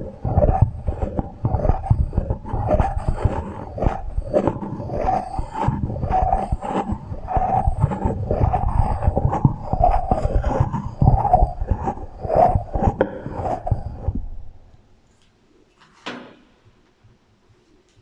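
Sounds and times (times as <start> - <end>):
rapid tapping: 0.0 - 14.4
scraping: 0.0 - 14.7.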